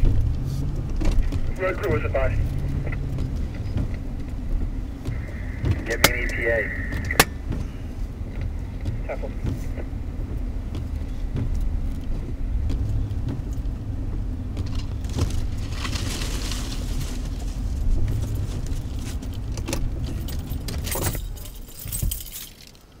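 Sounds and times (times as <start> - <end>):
engine and road rumble: 0.0 - 23.0
small clicks and rattles: 10.3 - 23.0
light jangling: 18.3 - 23.0.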